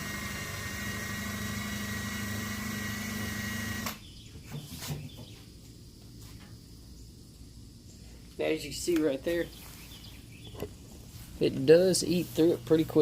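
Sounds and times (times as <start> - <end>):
drill whining: 0.0 - 4.0.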